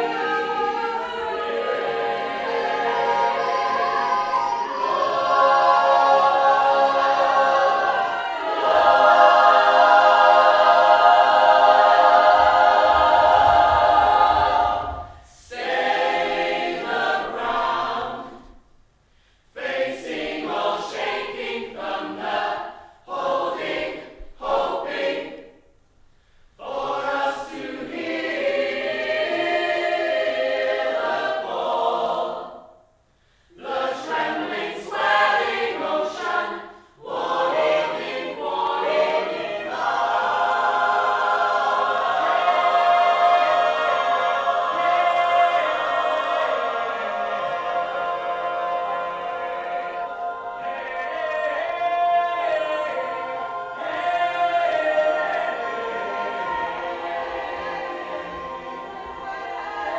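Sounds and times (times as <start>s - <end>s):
choir singing a cappella: 0.0s - 59.9s.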